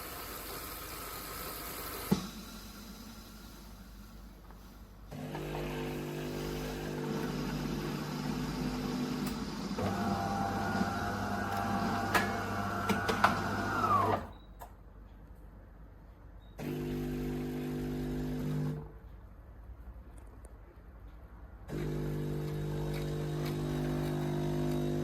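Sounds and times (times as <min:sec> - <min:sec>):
coffee machine motor hum: 0:05.1 - 0:14.3, 0:16.6 - 0:18.9, 0:21.7 - 0:25.0.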